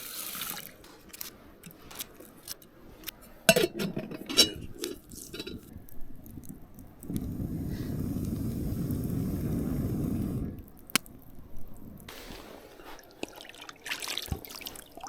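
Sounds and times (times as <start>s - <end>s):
dishes and utensils clinking: 3.5s - 5.7s.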